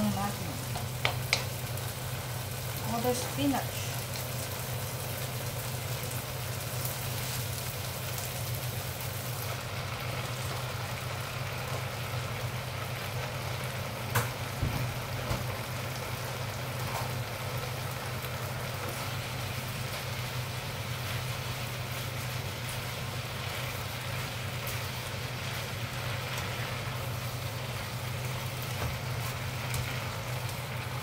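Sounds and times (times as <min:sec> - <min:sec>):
food sizzling in a wok: 0:00.0 - 0:31.0
spatula knocking wok: 0:00.7 - 0:01.6.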